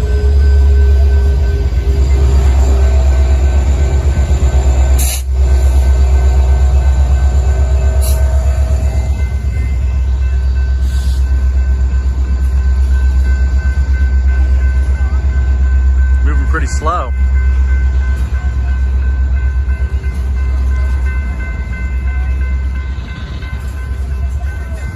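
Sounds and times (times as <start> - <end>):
wheels squealing on rail: 0.0 - 11.5
freight train rumbling: 0.0 - 24.9.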